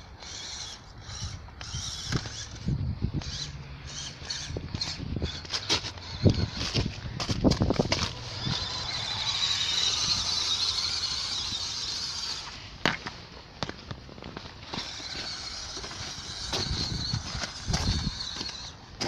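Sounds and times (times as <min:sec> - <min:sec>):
rc car motor whining: 0:00.0 - 0:12.8, 0:14.5 - 0:19.0
car bouncing over rough ground: 0:04.0 - 0:19.0.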